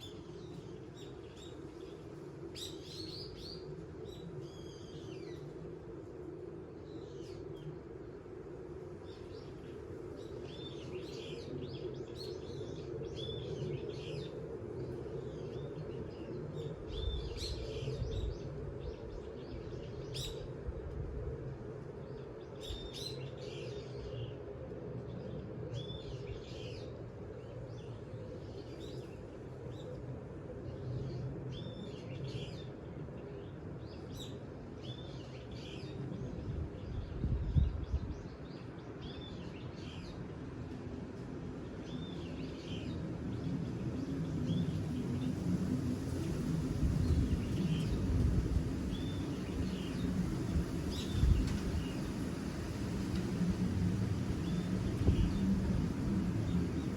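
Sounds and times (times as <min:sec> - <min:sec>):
wind gusts hitting microphone: 0:36.0 - 0:38.8, 0:42.9 - 0:56.9.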